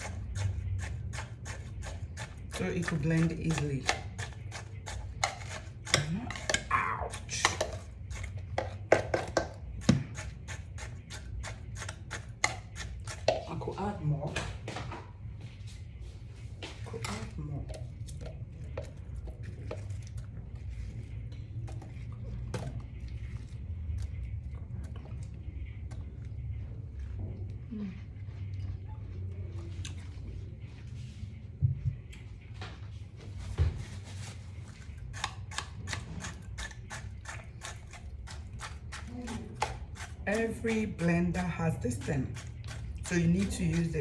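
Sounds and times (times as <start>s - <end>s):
utensils clinking on bowl: 0.0s - 13.6s
steady low hum: 0.0s - 44.0s.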